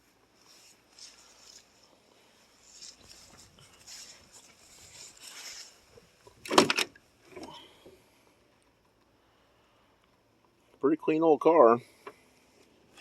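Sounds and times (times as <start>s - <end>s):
faint rustling handling noises: 0.0s - 6.4s.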